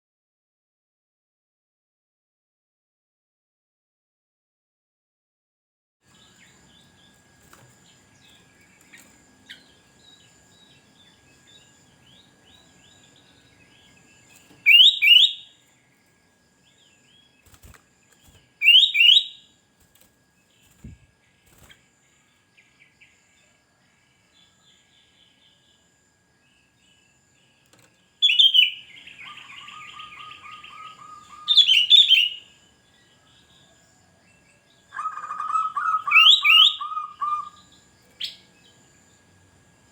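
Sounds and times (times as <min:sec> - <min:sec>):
faint bird chirps: 0:06.1 - 0:19.6, 0:20.3 - 0:39.4
bulbul calling: 0:14.6 - 0:15.5, 0:18.6 - 0:19.4, 0:28.2 - 0:32.4, 0:34.9 - 0:37.6.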